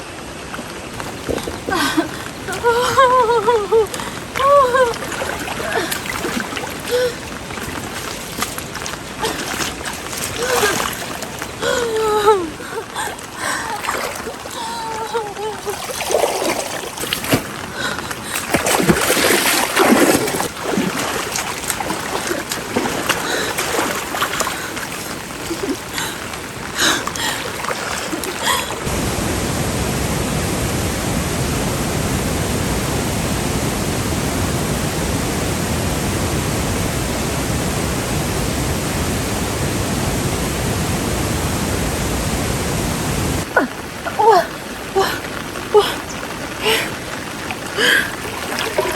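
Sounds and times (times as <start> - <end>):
floodwater sloshing and splashing: 0.0 - 30.4, 41.9 - 48.9
steady rush of water: 0.0 - 48.9.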